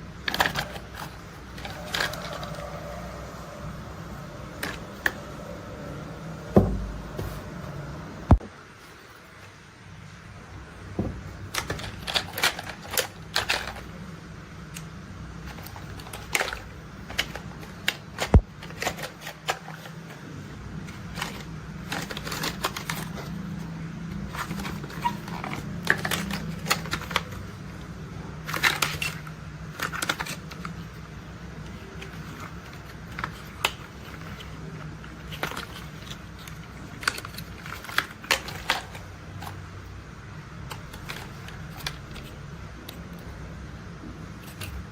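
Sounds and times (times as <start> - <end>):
steady low hum: 0.0 - 44.9
plastic toy parts clicking: 0.2 - 2.8, 11.5 - 14.0, 14.7 - 20.0, 20.9 - 23.3, 24.2 - 27.5, 28.4 - 31.0, 31.6 - 39.6, 40.6 - 43.3.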